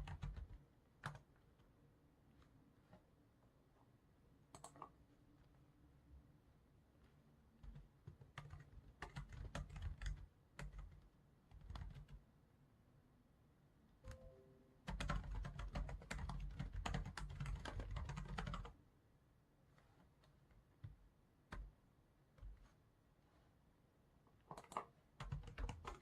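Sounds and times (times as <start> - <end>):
typing on computer keyboard: 0.0 - 1.3, 4.5 - 5.0, 7.6 - 12.2, 14.9 - 18.8, 24.5 - 26.0.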